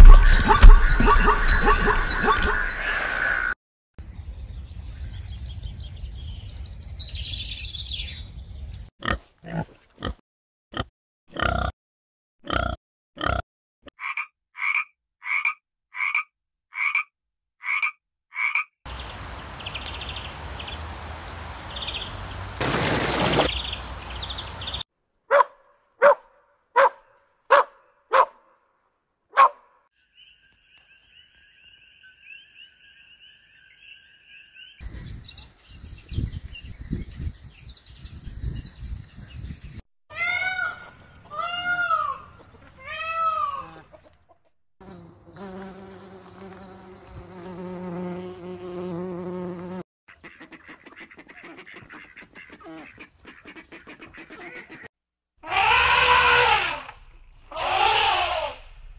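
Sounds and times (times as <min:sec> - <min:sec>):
arching animal calls: 0:00.0 - 0:03.4
sharp animal calls: 0:00.0 - 0:03.6, 0:50.2 - 0:56.9, 0:57.5 - 0:58.7
animal croaks: 0:09.0 - 0:11.8, 0:12.4 - 0:13.4.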